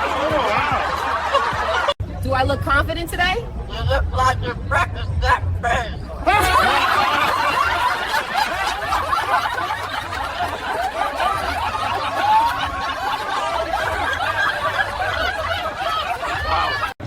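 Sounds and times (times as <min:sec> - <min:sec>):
crowd laughing: 0:00.0 - 0:02.0, 0:06.2 - 0:17.0.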